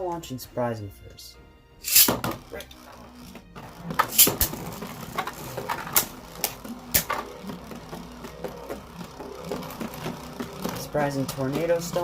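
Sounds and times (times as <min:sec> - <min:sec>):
spinning tops clashing: 0:01.8 - 0:02.2, 0:04.1 - 0:04.5
spinning tops whirring: 0:01.8 - 0:02.4, 0:03.2 - 0:12.0.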